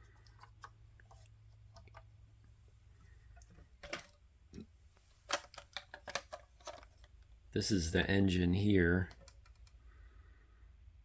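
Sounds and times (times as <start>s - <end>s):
faint steady hum: 0.0s - 11.0s
plastic parts clicking: 3.4s - 7.3s, 9.0s - 9.8s.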